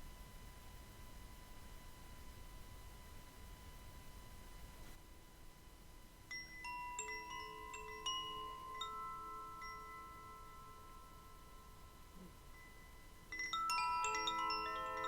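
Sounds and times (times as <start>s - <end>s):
metal chimes ringing: 6.3s - 15.0s.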